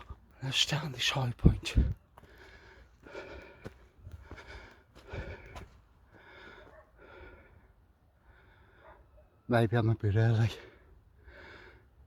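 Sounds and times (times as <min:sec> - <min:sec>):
man breathing: 0:02.2 - 0:09.0.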